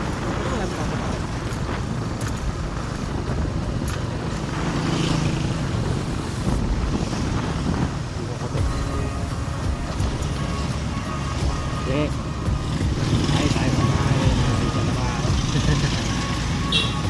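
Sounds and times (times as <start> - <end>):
wind rushing over microphone: 0.0 - 15.6
motorcycle engine running: 0.0 - 17.0.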